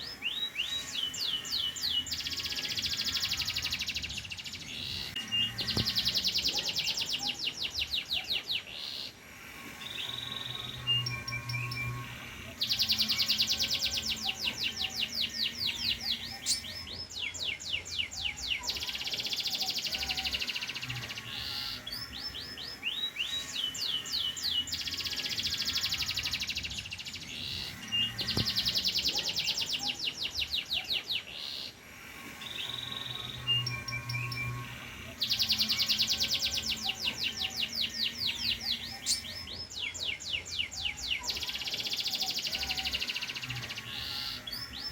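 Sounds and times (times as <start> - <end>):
canary singing: 0.0 - 44.9.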